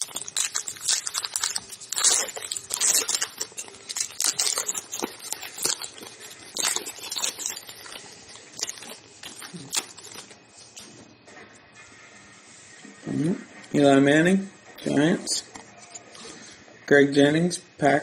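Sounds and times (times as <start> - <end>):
wrappers tearing and crinkling: 0.0 - 10.9.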